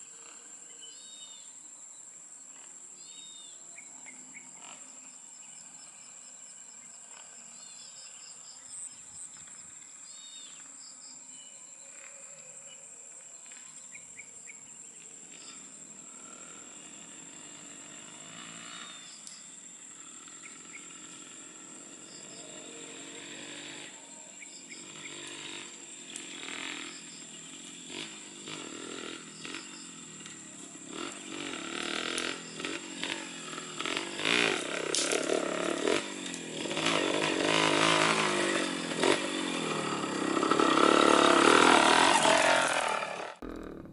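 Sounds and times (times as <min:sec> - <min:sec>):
high insect drone: 0:00.0 - 0:43.9
motorcycle engine: 0:02.4 - 0:43.9
bird chirps: 0:20.4 - 0:21.1.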